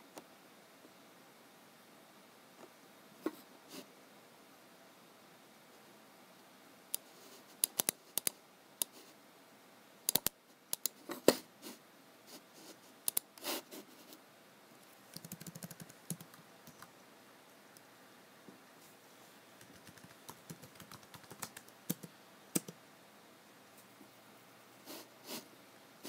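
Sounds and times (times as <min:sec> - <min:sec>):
mouse clicks: 0:06.9 - 0:09.0, 0:10.1 - 0:11.0, 0:13.0 - 0:13.4
typing on a keyboard: 0:07.6 - 0:08.4, 0:10.1 - 0:11.0, 0:15.1 - 0:16.9, 0:19.6 - 0:22.8.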